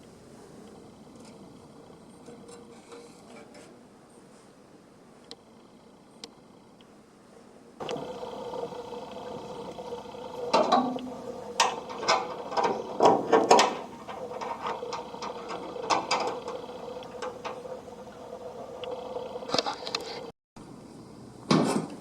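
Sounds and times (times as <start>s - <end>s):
sharp metallic clicks and knocks: 7.8s - 20.0s
small motor humming: 7.8s - 20.3s.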